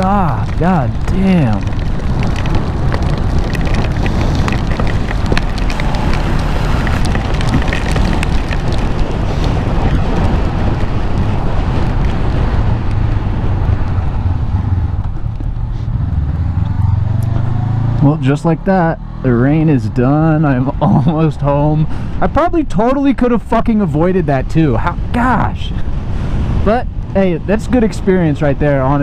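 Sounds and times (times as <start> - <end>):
raindrops ticking on helmet: 0.0 - 16.4
heavy rain: 0.0 - 18.0
wind on helmet microphone: 0.0 - 18.0, 19.3 - 29.0
motorcycle engine hum: 0.0 - 22.2.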